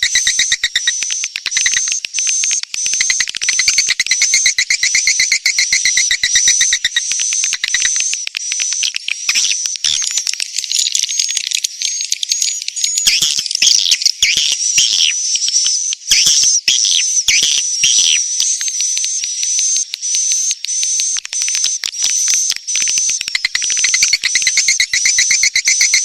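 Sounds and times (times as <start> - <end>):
swiftlets twittering chorus: 0.0 - 8.6, 20.4 - 26.0
sharp rapid clicks: 0.0 - 14.8, 17.3 - 26.0.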